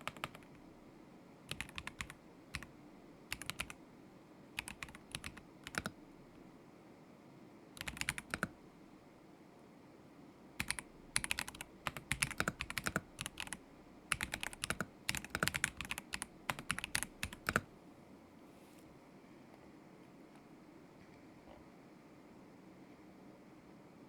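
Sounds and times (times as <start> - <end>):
mechanical keyboard typing: 0.0 - 0.6, 1.5 - 2.7, 3.3 - 3.8, 4.6 - 6.0, 7.8 - 8.6, 10.6 - 17.7.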